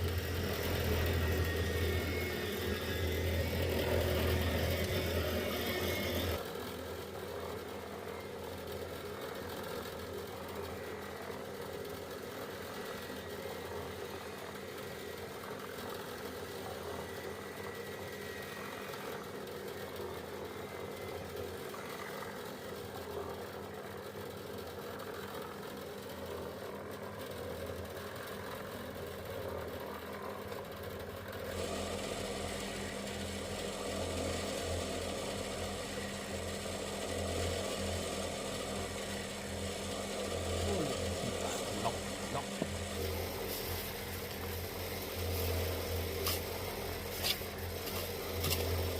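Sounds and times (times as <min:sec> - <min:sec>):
engine humming steadily: 0:00.0 - 0:48.9.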